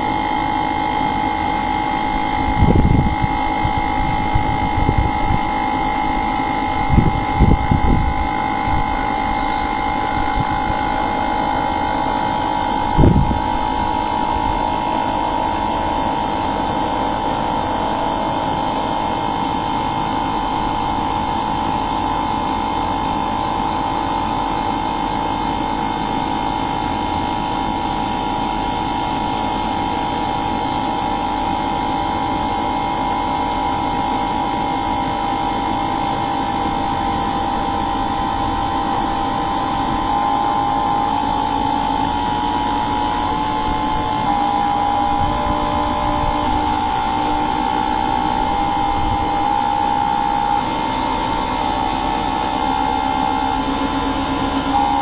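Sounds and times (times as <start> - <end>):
machine hum with whine: 0.0 - 55.0
thin high tone: 36.8 - 55.0.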